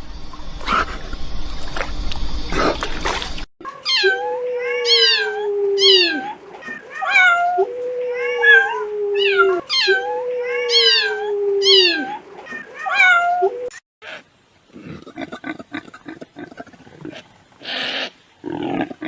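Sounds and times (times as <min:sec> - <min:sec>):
higher yipping howls: 0:03.7 - 0:13.7
wolves howling low: 0:04.0 - 0:13.8.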